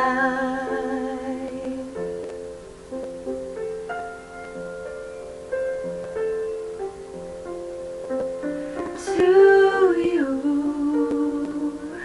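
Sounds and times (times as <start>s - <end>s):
slow ballad instrumental: 0.0s - 12.0s.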